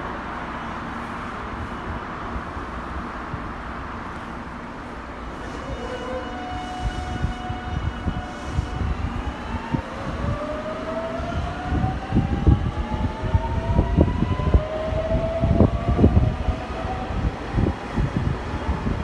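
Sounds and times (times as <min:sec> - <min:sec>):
train motor whine: 0:05.3 - 0:12.9.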